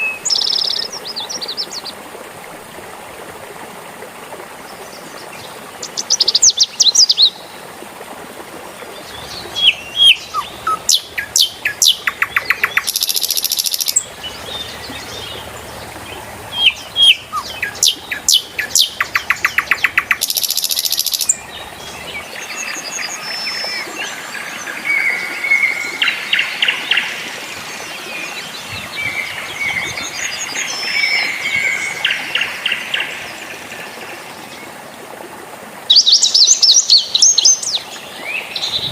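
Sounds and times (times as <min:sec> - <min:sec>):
birds singing and calling: 0:00.0 - 0:01.9, 0:08.9 - 0:34.6, 0:35.9 - 0:38.9
trickle of running water: 0:00.0 - 0:38.9.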